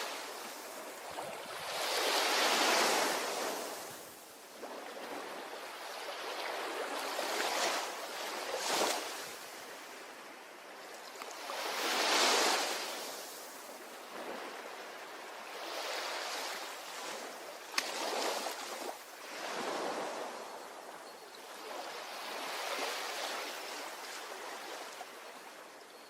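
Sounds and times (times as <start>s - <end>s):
ocean waves breaking on shore: 0.0s - 26.0s.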